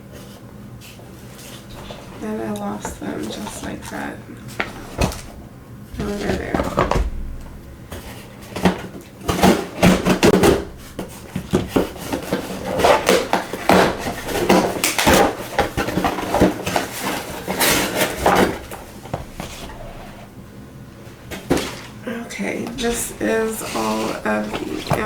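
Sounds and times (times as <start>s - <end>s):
packaging rustling and clattering: 0.2s - 5.4s, 6.0s - 20.3s, 21.0s - 25.0s
scissors cutting cardboard: 8.5s - 19.9s.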